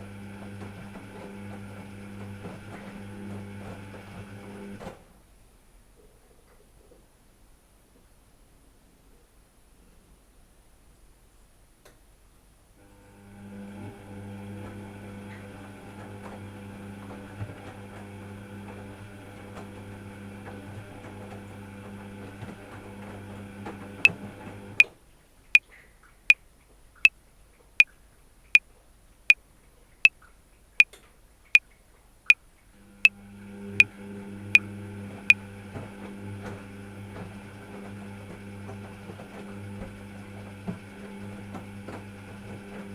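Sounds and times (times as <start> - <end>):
washing machine motor hum: 0.0 - 5.0, 12.8 - 24.9, 32.8 - 42.9.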